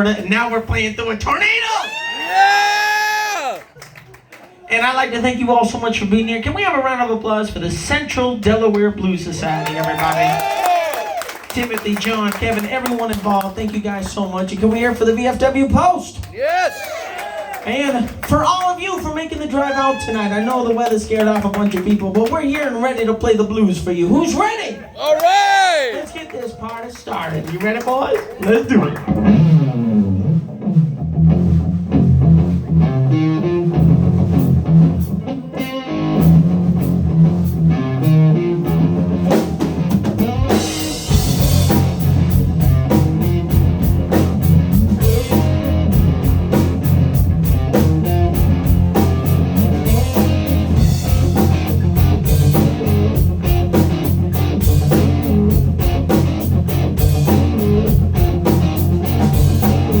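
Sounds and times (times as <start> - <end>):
live blues-rock band: 11.5 - 16.4, 18.0 - 24.4, 26.0 - 60.0
electric guitar: 28.8 - 60.0.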